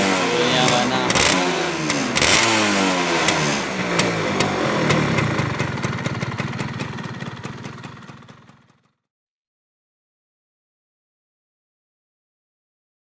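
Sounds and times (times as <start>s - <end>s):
two-stroke motorcycle engine: 0.0s - 9.1s.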